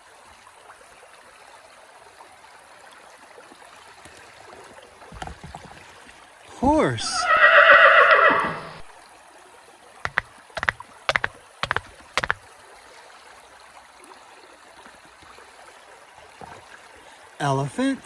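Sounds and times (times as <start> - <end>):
stream flowing: 0.0 - 18.0
horse whinny: 7.0 - 8.9
sharp clicks: 10.1 - 12.4.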